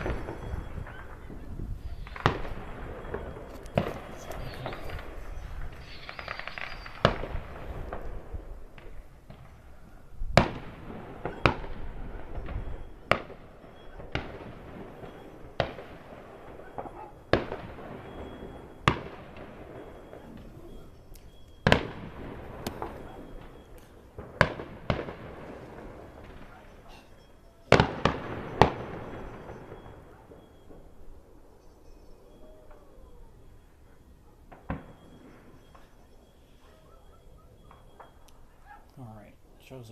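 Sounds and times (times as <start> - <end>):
fireworks bangs with rumbling echo: 0.0 - 21.0, 21.6 - 31.3, 34.5 - 36.1.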